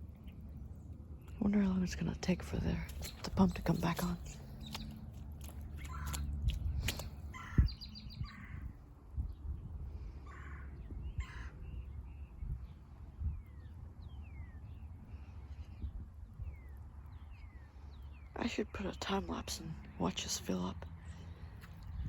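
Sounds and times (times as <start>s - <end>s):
small bird chirping: 2.7s - 8.7s
crows cawing: 5.8s - 6.3s, 7.3s - 8.6s, 10.3s - 11.6s.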